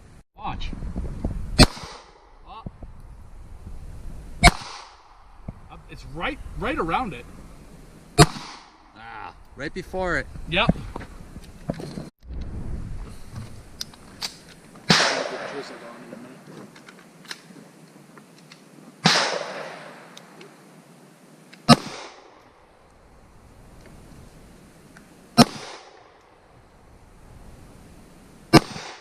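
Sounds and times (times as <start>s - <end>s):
pistol shots with echo: 4.4s - 5.0s, 14.9s - 15.8s, 19.0s - 20.0s.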